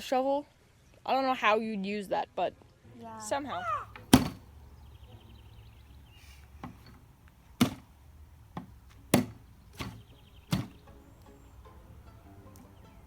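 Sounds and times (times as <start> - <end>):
sharp knocks: 4.0 - 4.5, 7.6 - 10.8.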